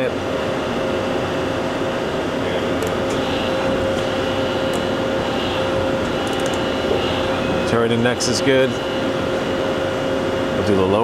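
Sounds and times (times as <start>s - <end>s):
lathe machine hum: 0.1s - 11.0s.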